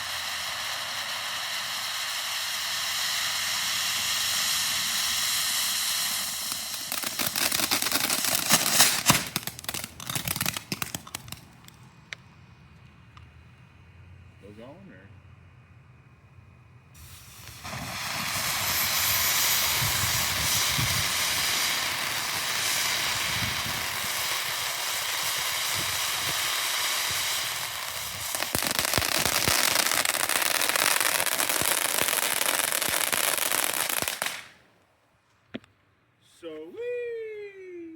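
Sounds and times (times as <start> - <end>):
firework fountain hissing: 0.0 - 11.7, 16.9 - 34.7
firework crackling: 0.0 - 12.0, 17.0 - 35.5.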